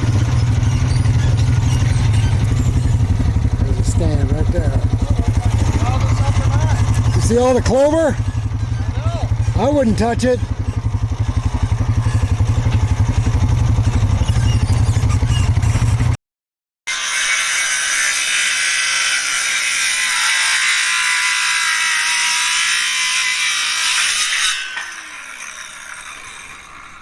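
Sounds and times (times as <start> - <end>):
atv engine running: 0.0 - 16.2.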